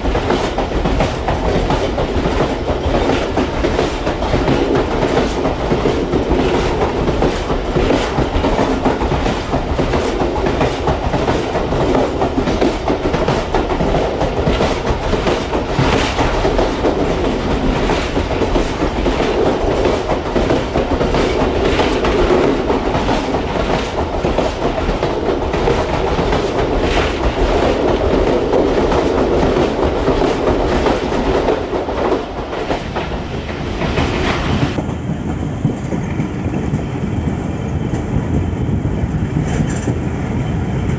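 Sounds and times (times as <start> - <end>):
train wheels clacking over rail joints: 0.0 - 40.1.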